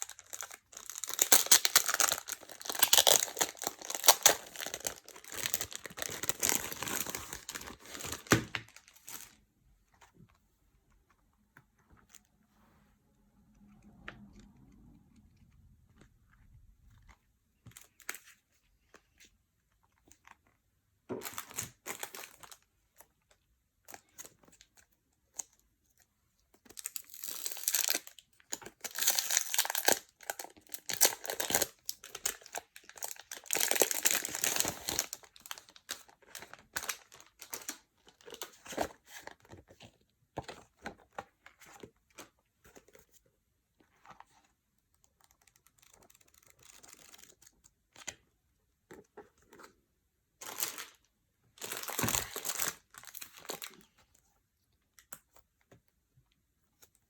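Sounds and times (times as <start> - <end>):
packaging crinkling and tearing: 0.0 - 9.4, 26.7 - 39.8, 45.2 - 48.1, 50.4 - 51.0, 51.6 - 53.9.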